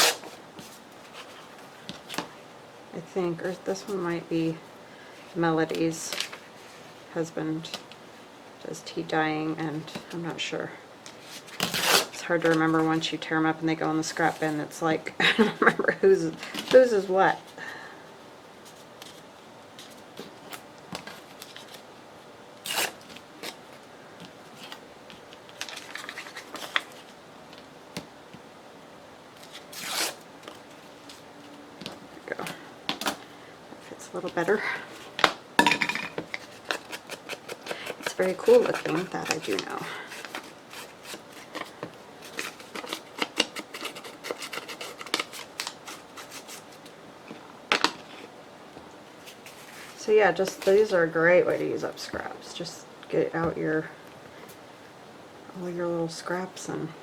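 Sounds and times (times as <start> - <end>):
paper rustling and crackling: 18.7 - 21.9, 22.7 - 27.7, 36.2 - 48.3.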